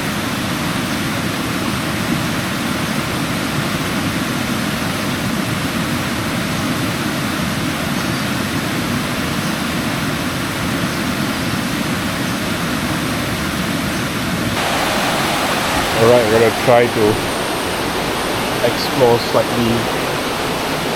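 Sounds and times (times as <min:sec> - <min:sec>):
river water rushing over rocks: 0:00.0 - 0:20.9.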